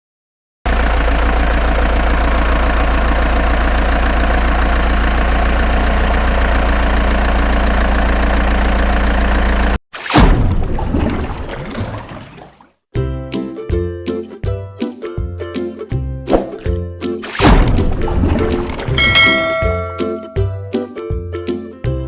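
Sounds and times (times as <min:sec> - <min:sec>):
engine idling: 0:00.7 - 0:09.8, 0:18.6 - 0:20.4.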